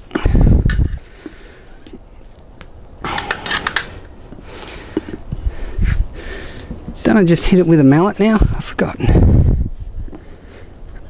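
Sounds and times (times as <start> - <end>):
metal tools clinking on wheel rim: 3.1 - 4.0.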